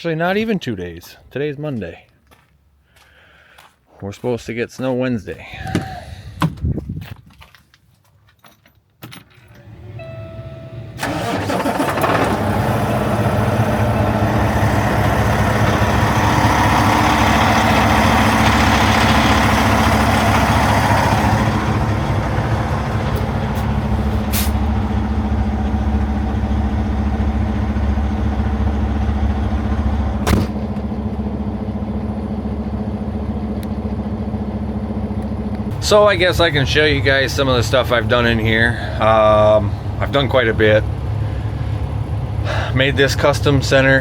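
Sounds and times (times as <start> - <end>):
truck diesel engine idling: 11.0 - 44.0
thump: 30.2 - 30.8.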